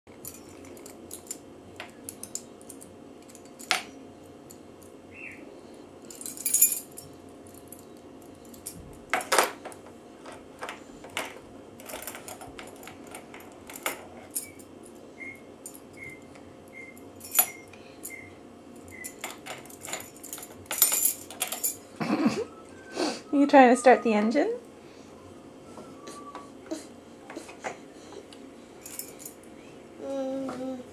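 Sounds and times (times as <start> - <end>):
keys jangling and clicking: 0.2 - 4.9, 6.0 - 15.0, 15.6 - 16.2, 17.0 - 18.2, 18.8 - 21.8, 28.8 - 29.5
faint high chirps: 15.2 - 19.2, 25.2 - 26.6.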